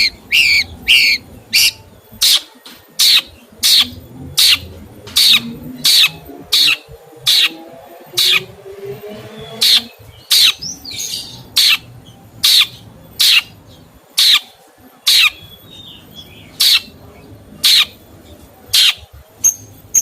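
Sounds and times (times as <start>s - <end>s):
bird harsh call: 0.0s - 4.6s, 5.2s - 7.6s, 8.2s - 8.6s, 9.5s - 13.6s
faint bird twittering: 0.0s - 20.0s.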